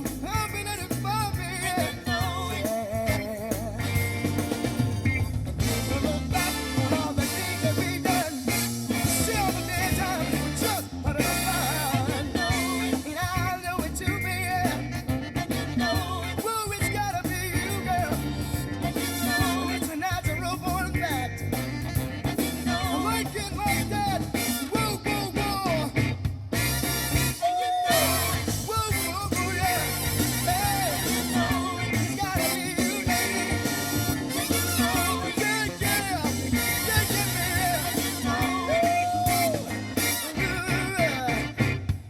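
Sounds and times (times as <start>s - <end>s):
funk song through car speakers: 0.0s - 42.0s.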